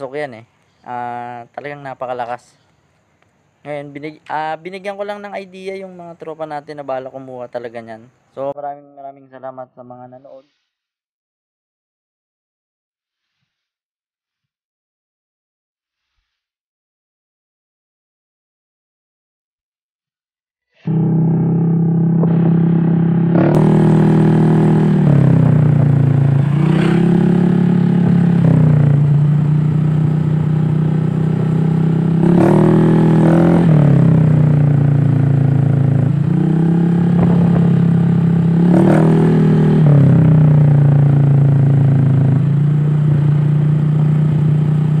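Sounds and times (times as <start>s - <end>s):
scooter engine idling and revving: 20.9s - 45.0s.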